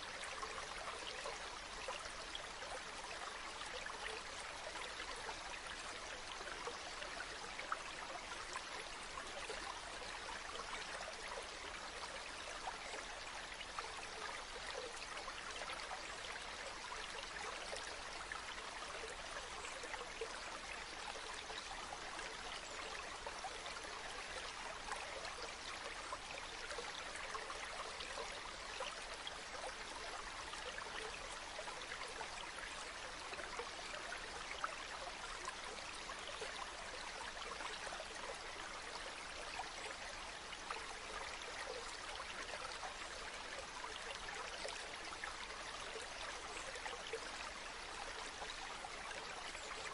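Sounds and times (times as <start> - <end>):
river water flowing over stones: 0.0 - 49.9.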